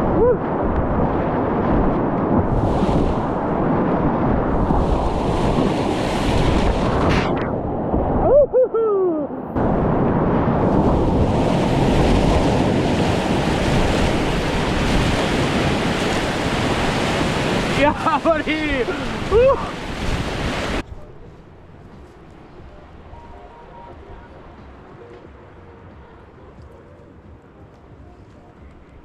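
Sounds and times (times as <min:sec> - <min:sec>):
wind on microphone: 0:00.0 - 0:18.0, 0:18.7 - 0:29.0
short falling whoop: 0:08.2 - 0:09.4
rushing whitewater: 0:10.7 - 0:20.8.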